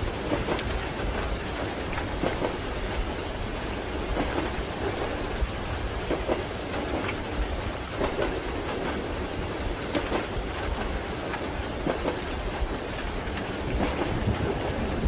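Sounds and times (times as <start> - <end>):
rain pattering: 0.0 - 15.0
train rumbling: 0.0 - 15.0
train wheels knocking on rails: 0.1 - 3.2, 4.0 - 5.3, 5.9 - 7.2.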